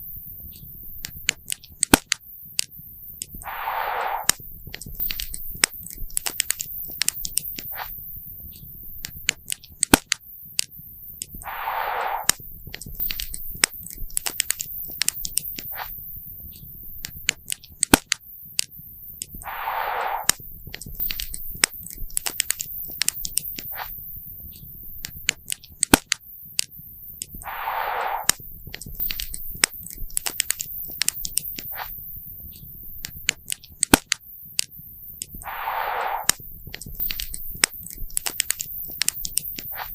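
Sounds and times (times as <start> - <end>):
short hiss: 3.4 - 4.4, 11.4 - 12.4, 19.4 - 20.4, 27.4 - 28.5, 35.4 - 38.0.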